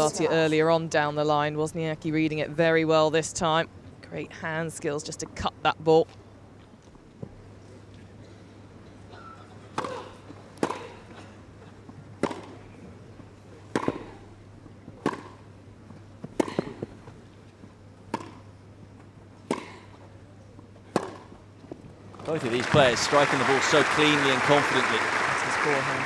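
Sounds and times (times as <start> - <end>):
tennis ball struck by rackets: 10.6 - 11.0, 12.2 - 12.6, 13.7 - 14.2, 15.0 - 15.4, 16.2 - 16.9, 18.1 - 18.5, 19.4 - 19.9, 20.9 - 21.4.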